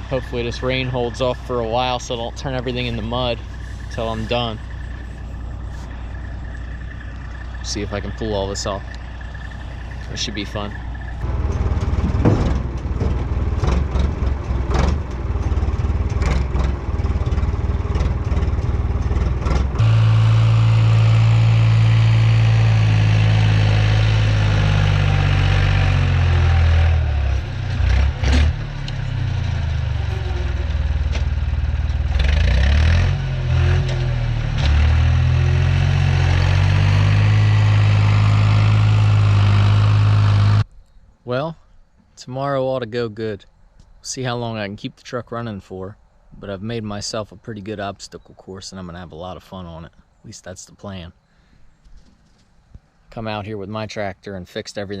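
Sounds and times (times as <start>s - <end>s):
vehicle engine running: 0.0s - 40.7s
clattering knocks: 11.2s - 19.8s.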